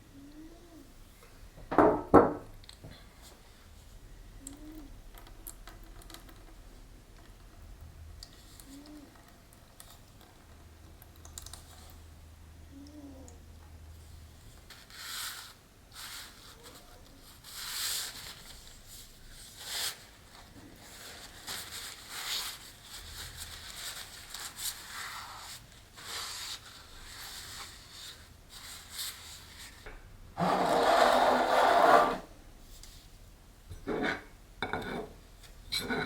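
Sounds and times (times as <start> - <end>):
hands rubbing a potted plant: 14.7 - 29.8
loud scraping rush: 30.4 - 32.3.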